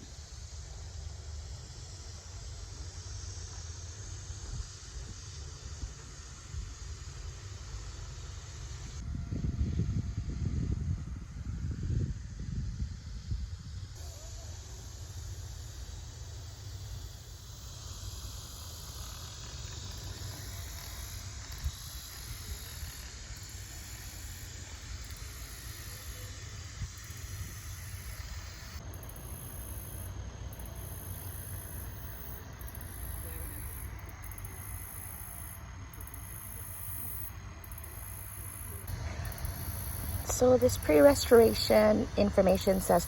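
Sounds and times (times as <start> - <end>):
high hiss: 12.5 - 43.0.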